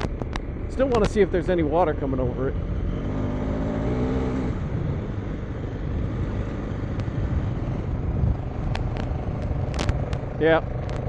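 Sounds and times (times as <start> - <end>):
motorcycle engine running: 0.0 - 11.0
wind noise on microphone: 3.9 - 11.0.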